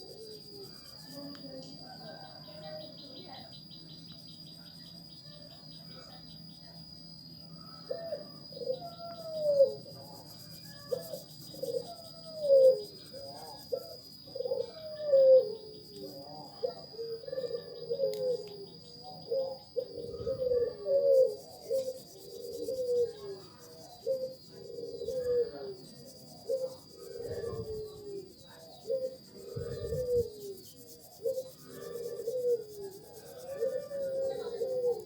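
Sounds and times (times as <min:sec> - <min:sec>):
high insect-like whine: 0:00.0 - 0:35.0
birds cooing: 0:07.6 - 0:35.0.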